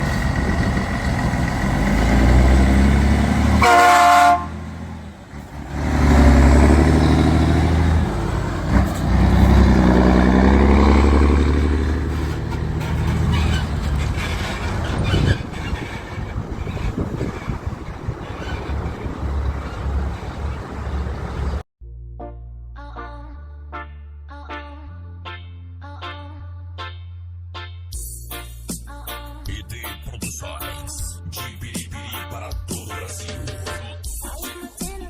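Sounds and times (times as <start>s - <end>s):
truck diesel engine running: 0.0s - 21.6s
truck horn blast: 1.7s - 13.9s.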